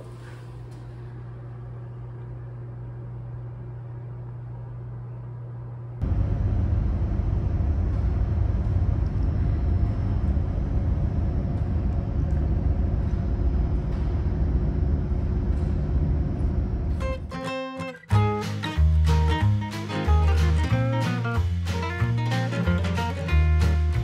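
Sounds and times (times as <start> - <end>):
moving vehicle rumble: 6.0 - 17.1
guitar music: 17.0 - 24.0.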